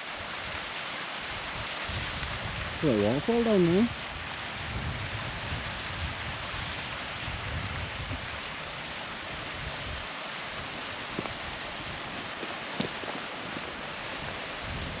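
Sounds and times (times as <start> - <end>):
waterfall rushing: 0.0 - 15.0
wind buffeting microphone: 3.9 - 15.0.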